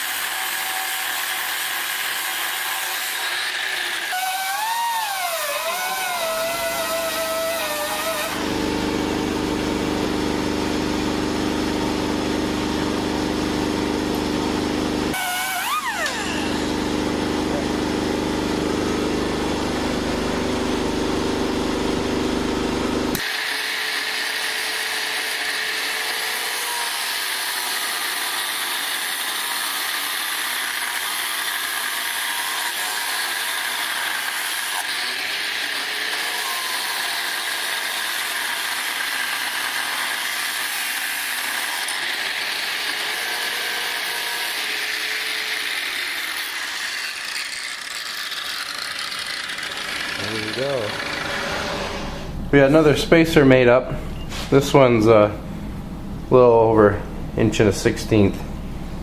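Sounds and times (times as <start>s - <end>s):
high hissing metal cutting: 0.0s - 8.5s, 15.1s - 17.6s, 23.1s - 53.1s
machine tool motor hum: 0.0s - 52.7s.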